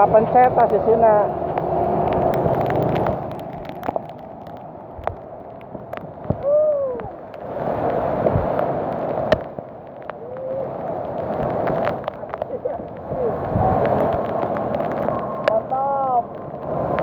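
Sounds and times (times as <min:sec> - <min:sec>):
bicycle tyres hissing on wet ground: 0:06.3 - 0:17.0.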